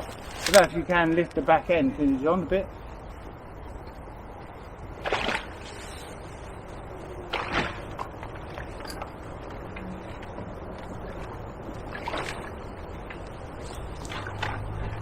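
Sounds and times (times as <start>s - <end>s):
river water sloshing: 0.0s - 0.8s, 5.0s - 6.5s, 7.2s - 15.0s
short water splashes: 11.8s - 13.0s, 13.6s - 15.0s.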